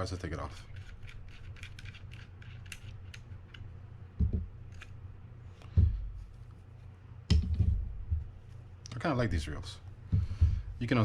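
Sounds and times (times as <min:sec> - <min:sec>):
steady low hum: 0:00.0 - 0:11.0
dull knocks: 0:10.1 - 0:10.7.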